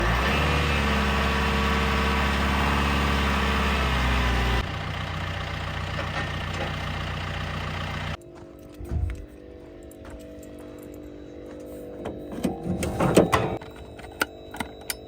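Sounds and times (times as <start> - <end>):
diesel backhoe engine running: 0.0 - 8.2.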